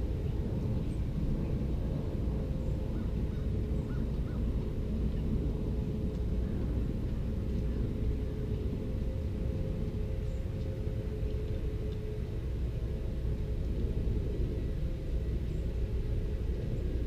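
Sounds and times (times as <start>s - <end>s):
low outdoor rumble: 0.0s - 17.0s
steady hum: 0.0s - 17.0s.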